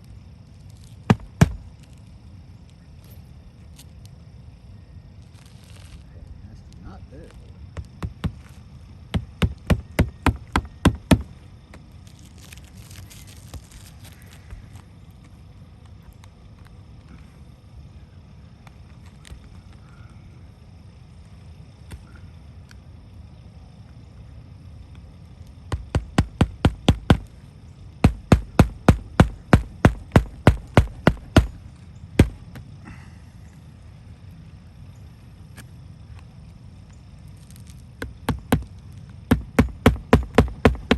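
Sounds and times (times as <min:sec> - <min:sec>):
faint scraping rustle: 0:05.2 - 0:06.6, 0:11.8 - 0:17.4
hammer driving nail into shingles: 0:09.1 - 0:11.3, 0:25.8 - 0:27.3, 0:28.0 - 0:31.6, 0:32.2 - 0:32.5, 0:38.0 - 0:38.7, 0:39.3 - 0:40.9.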